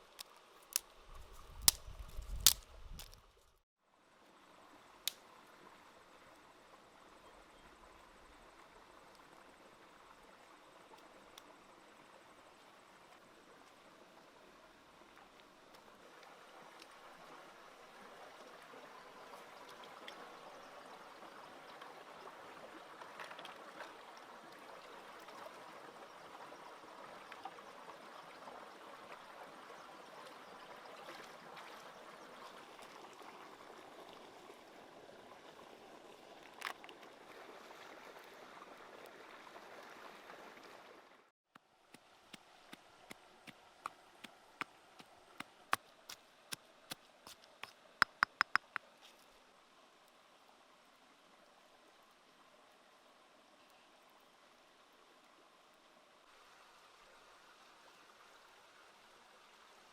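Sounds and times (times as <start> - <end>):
steady water noise: 0.0 - 59.9
sharp clicks: 48.0 - 48.8.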